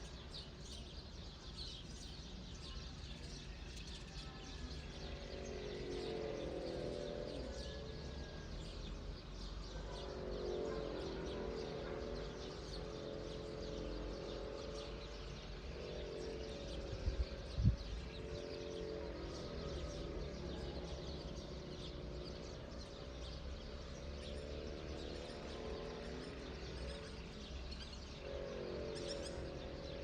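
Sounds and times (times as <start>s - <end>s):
small birds chirping: 0.0s - 30.0s
wavering animal calls: 23.7s - 30.0s.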